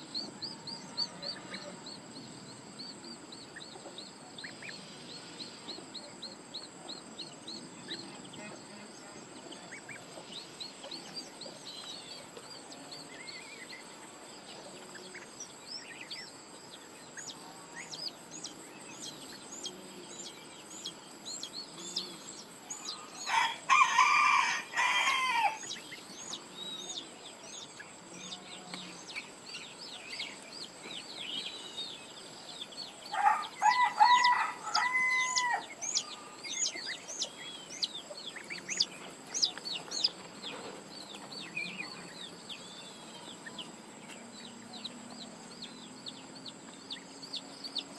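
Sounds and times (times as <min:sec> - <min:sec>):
small birds chirping: 0:00.0 - 0:47.9
rooster crowing: 0:22.8 - 0:25.8, 0:33.1 - 0:36.4.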